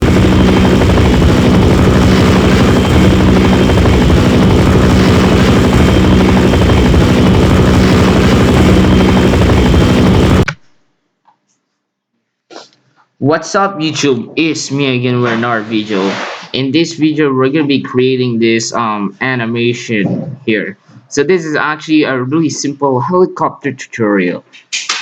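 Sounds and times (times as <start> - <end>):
helicopter rotor and engine: 0.0 - 10.5.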